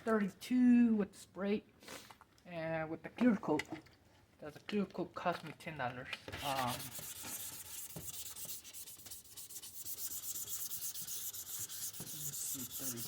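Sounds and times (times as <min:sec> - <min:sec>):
sandpaper scraping plastic: 0:06.3 - 0:13.0.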